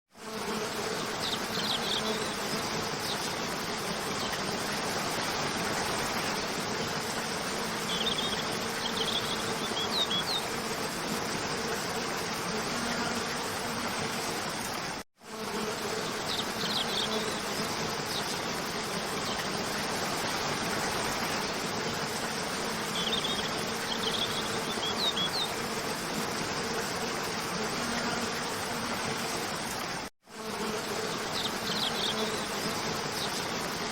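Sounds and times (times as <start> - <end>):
insects buzzing: 0.2 - 33.9
stream water flowing: 18.0 - 27.5.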